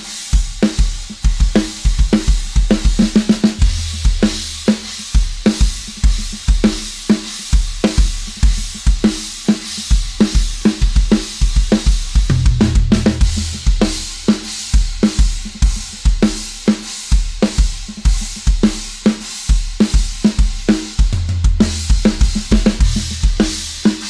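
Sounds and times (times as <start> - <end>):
rock drum beat: 0.0 - 24.0
bass line: 3.6 - 4.3, 12.3 - 13.7.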